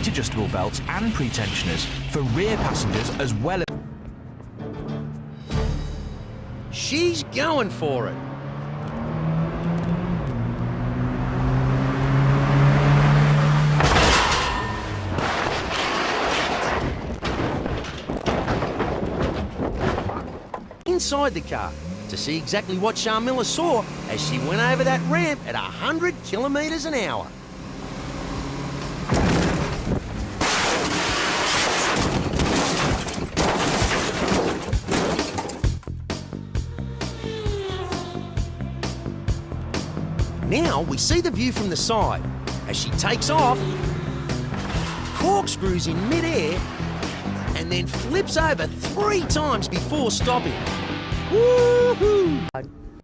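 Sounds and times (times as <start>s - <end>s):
car crashing and rolling: 0.0s - 3.6s, 13.6s - 20.8s, 28.9s - 35.8s, 41.7s - 49.3s
car engine running hard: 0.0s - 3.6s, 6.5s - 14.0s, 21.0s - 31.4s, 37.2s - 51.3s
gear change: 8.2s - 15.2s, 34.7s - 49.6s.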